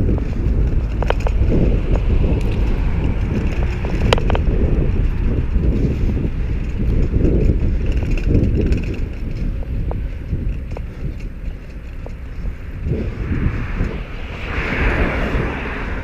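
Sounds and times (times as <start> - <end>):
road and traffic noise: 0.0 - 16.0
wind buffeting microphone: 0.0 - 16.0.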